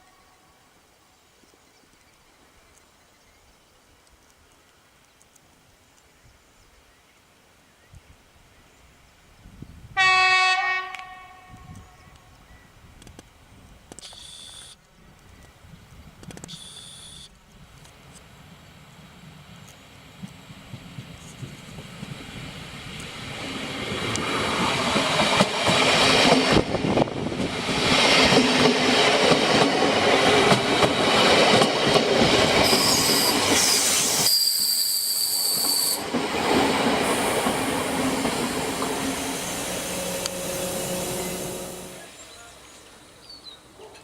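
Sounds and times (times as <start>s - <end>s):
train rumbling and clattering: 17.8s - 34.8s, 35.4s - 43.1s
high-pitched wheel squeal: 32.6s - 36.0s.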